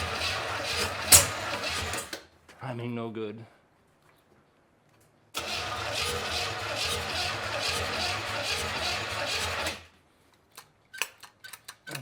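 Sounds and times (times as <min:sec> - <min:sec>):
car engine cranking on starter: 0:00.0 - 0:02.2, 0:05.4 - 0:09.9.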